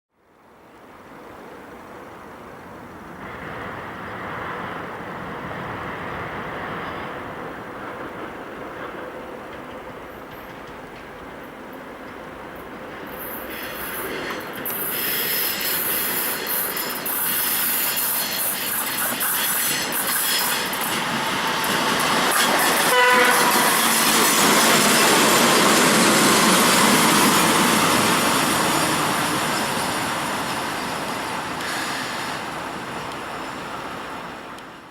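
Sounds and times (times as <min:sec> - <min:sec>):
diesel locomotive passing: 0:00.5 - 0:34.9
high hiss from rails: 0:08.7 - 0:34.9
locomotive horn toot: 0:22.7 - 0:23.8.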